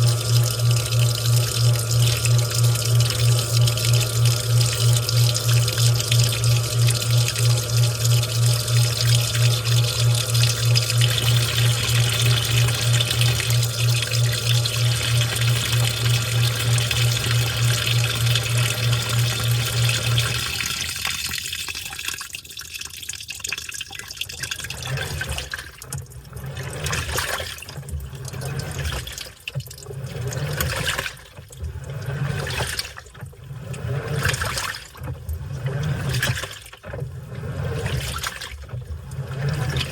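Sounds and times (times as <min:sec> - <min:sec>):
washing machine humming: 0:00.0 - 0:39.9
water sloshing and splashing: 0:00.0 - 0:39.9.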